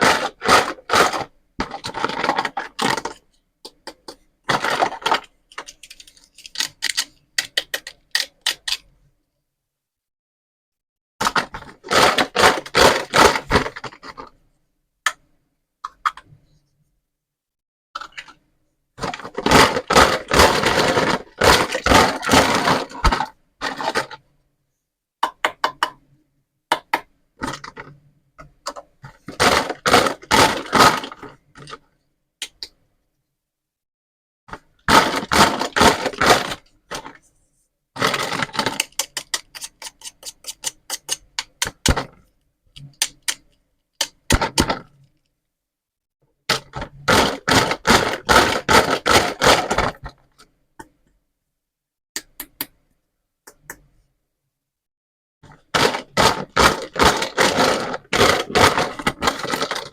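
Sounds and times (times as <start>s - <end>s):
plastic toy food crackling and clicking: 0.0s - 9.0s, 11.2s - 14.4s, 18.0s - 18.4s, 19.0s - 24.2s, 26.7s - 31.8s, 34.5s - 37.2s, 38.0s - 45.2s, 46.5s - 51.0s, 55.5s - 59.9s.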